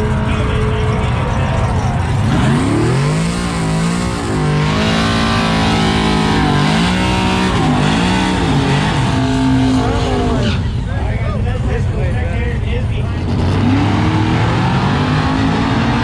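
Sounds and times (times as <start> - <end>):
race engine revving hard: 0.0 - 10.9, 13.1 - 16.0.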